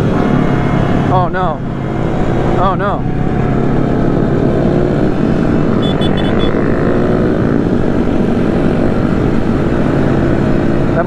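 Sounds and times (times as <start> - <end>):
motorcycle engines running: 0.0 - 11.0
rushing wind: 0.0 - 11.0
quick high beeps: 5.8 - 6.6.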